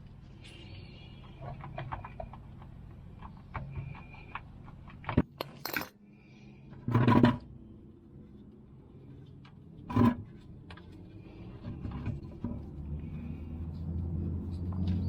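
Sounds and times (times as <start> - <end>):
tools clattering: 5.2 - 6.0
metal hand tools clinking: 5.4 - 6.0.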